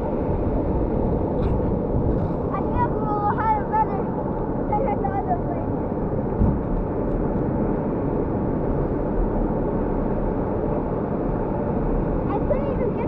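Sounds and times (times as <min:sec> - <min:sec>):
sharp thump: 0:06.4 - 0:06.8.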